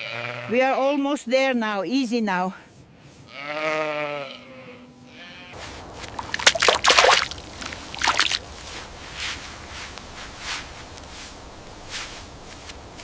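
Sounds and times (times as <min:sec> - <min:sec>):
footsteps squelching through mud: 0:05.6 - 0:09.5.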